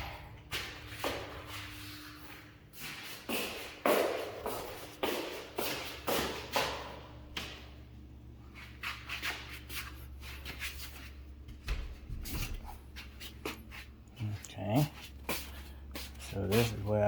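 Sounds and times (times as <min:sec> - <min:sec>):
low hum: 0:00.0 - 0:03.0
footsteps: 0:00.0 - 0:07.8, 0:08.4 - 0:17.0
shuffling scuffs and taps: 0:00.5 - 0:07.8, 0:08.4 - 0:17.0.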